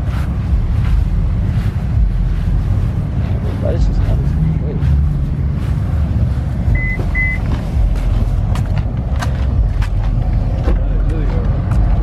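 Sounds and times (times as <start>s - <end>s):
car engines rumbling: 0.0s - 12.0s
short electronic beeps: 6.7s - 7.4s.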